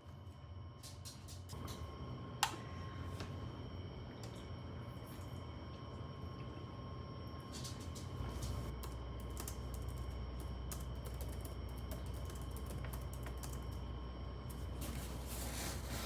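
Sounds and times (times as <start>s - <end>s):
steady low hum: 0.0s - 16.0s
typing on computer keyboard: 8.8s - 13.8s.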